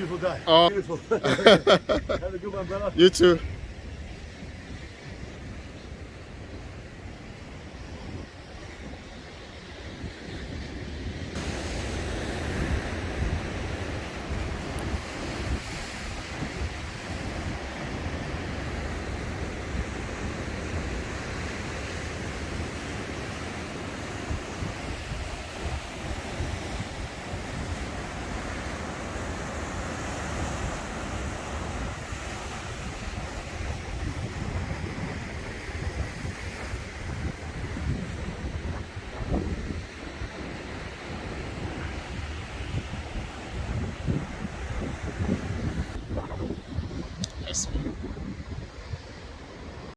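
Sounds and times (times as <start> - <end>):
ocean waves rushing: 0.0 - 3.4, 7.7 - 49.9
wind buffeting microphone: 0.0 - 49.9.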